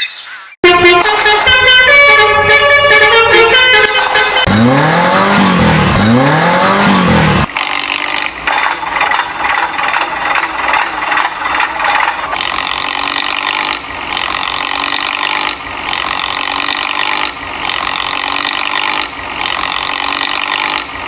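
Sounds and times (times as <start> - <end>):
vehicle horn blast: 0.6 - 4.9
rapid mechanical rattling: 7.5 - 20.9.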